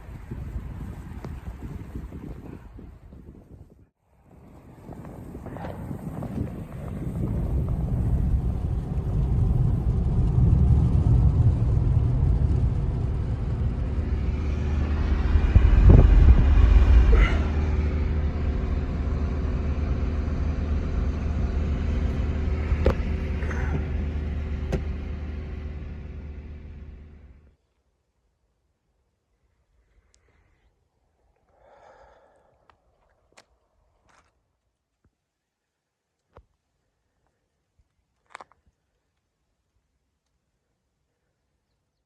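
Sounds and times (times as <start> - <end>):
vehicle engine rumbling: 4.2 - 27.6.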